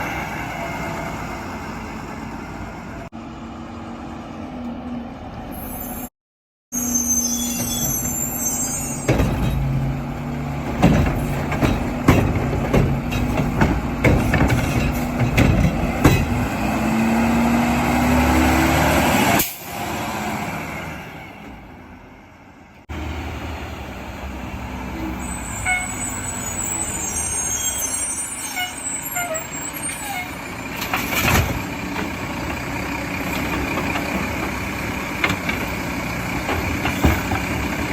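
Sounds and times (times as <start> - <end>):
diesel engine revving: 7.8 - 28.0
trash dropping into hopper: 9.0 - 16.7
bangs and clatters of cart: 9.0 - 17.0, 30.8 - 32.2, 33.2 - 37.9.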